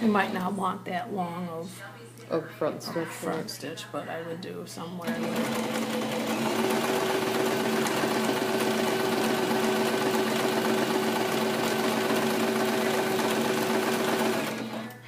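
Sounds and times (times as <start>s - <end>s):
sewing machine stitching: 5.0s - 15.0s.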